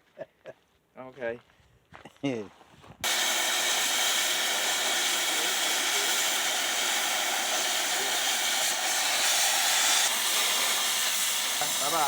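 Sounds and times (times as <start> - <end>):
cutting torch hissing: 3.0 - 12.0.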